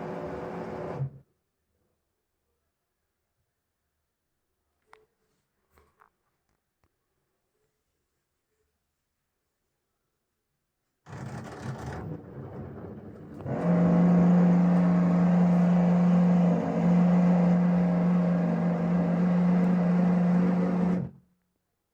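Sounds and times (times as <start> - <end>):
washing machine humming: 0.0 - 1.1, 11.6 - 21.1
low rumbling: 12.0 - 21.1.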